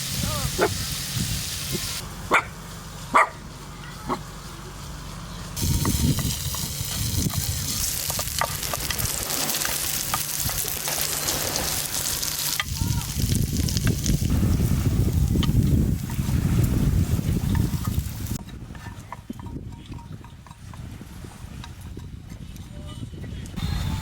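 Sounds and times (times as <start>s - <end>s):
food sizzling in a pan: 0.0s - 2.0s, 5.6s - 18.4s.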